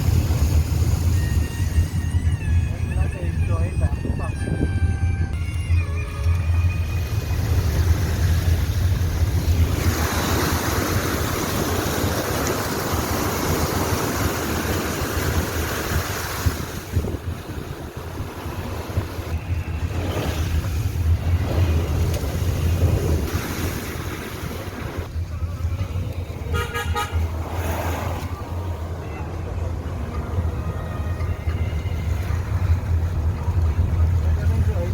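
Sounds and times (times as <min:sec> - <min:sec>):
car engine rumble: 0:00.0 - 0:34.9
water splashing against car: 0:06.8 - 0:29.0.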